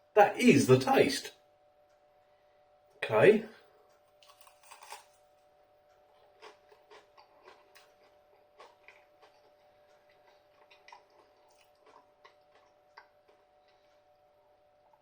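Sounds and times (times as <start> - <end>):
faint steady hum: 0.0 - 15.0
person chewing crispy food: 3.9 - 15.0.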